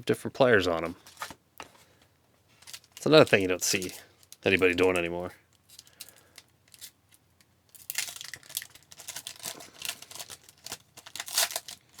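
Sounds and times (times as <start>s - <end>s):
wrapper tearing and crinkling: 2.6s - 5.0s, 7.7s - 12.0s.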